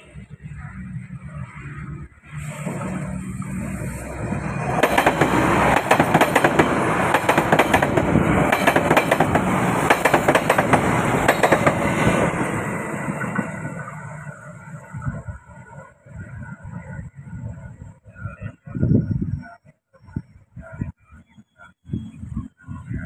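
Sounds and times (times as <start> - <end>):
train rumble: 0.0 - 19.6
wheels clattering over rail joints: 2.7 - 14.4.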